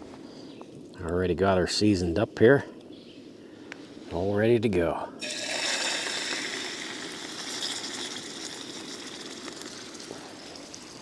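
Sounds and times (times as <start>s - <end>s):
steak sizzling in a pan: 5.2s - 11.0s.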